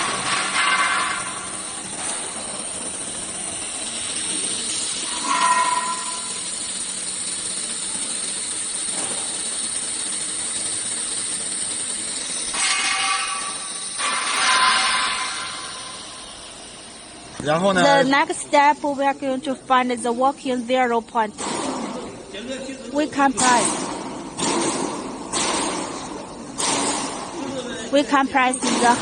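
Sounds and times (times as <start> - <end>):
machinery hissing: 0.0 - 22.3.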